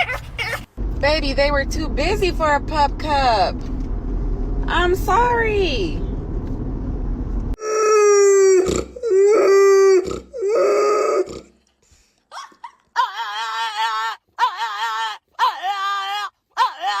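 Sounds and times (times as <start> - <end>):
car cabin rumble: 0.0 - 7.6.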